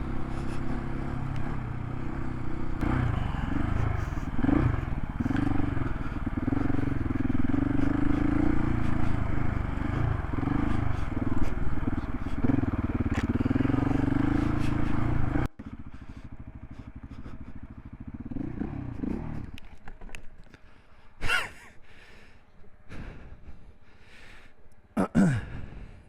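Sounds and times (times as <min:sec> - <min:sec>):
motorcycle engine revving: 0:00.0 - 0:20.6.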